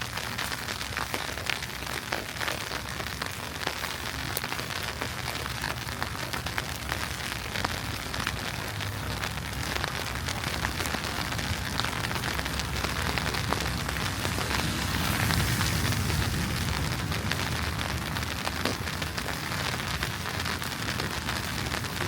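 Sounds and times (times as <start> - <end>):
low city rumble: 0.0 - 22.0
wet snow pattering: 0.0 - 22.0.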